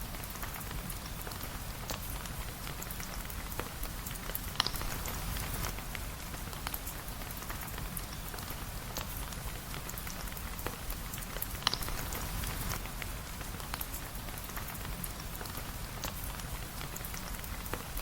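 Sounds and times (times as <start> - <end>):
steady rain hissing: 0.0 - 18.0
sharp ticks and pops: 2.8 - 5.8, 6.6 - 17.9.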